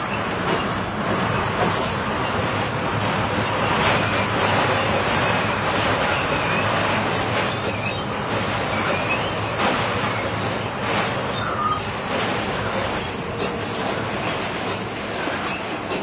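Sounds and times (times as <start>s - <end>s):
train rolling on rails: 0.0s - 16.0s
faint brief squeals: 11.2s - 12.6s.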